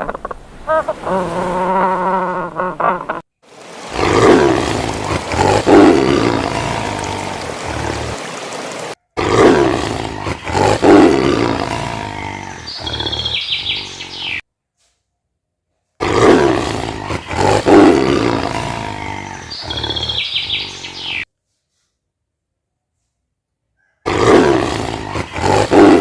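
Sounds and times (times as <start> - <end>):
big cat roaring: 3.7 - 8.4, 9.2 - 14.1, 16.0 - 21.0, 24.0 - 26.0.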